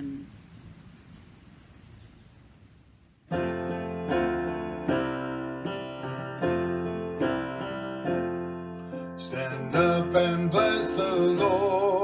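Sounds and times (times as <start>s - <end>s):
piano playing hymn chords: 3.3s - 12.0s.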